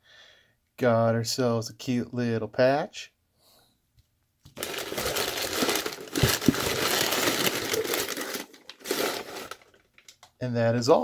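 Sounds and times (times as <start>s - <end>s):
packaging crumpling by hand: 4.5s - 10.3s.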